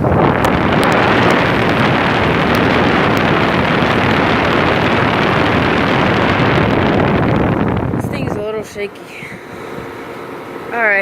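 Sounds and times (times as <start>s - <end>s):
air conditioner fan wind noise: 0.0s - 11.0s.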